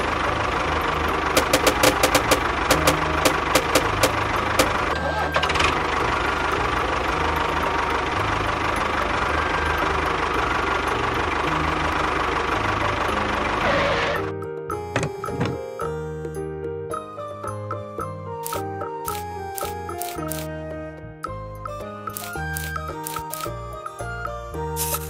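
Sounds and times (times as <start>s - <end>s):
sharp clicks: 1.4s - 4.8s, 18.4s - 20.5s, 22.1s - 23.5s
small engine knocking: 1.4s - 4.9s.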